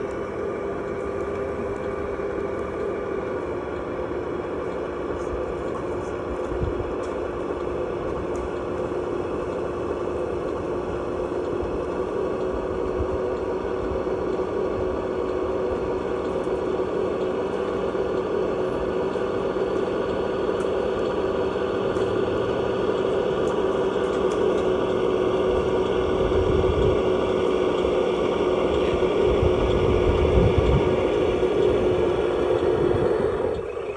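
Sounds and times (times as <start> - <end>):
toy truck motor humming: 0.0 - 33.9.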